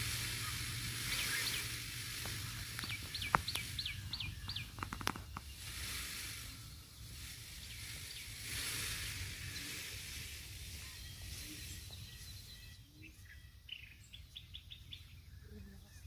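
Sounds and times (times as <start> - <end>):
low outdoor rumble: 0.0 - 12.9
bird calling hooked notes: 0.1 - 5.7
sharp clicks: 4.4 - 5.5.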